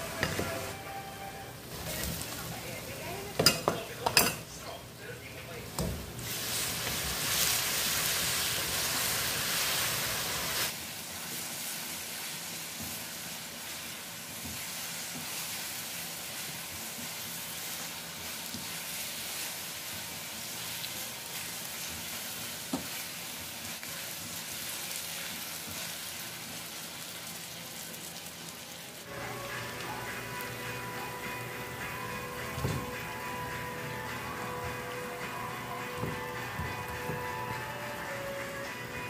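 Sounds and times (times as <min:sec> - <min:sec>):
sauce sizzling in a wok: 0:00.0 - 0:03.5, 0:05.8 - 0:39.0.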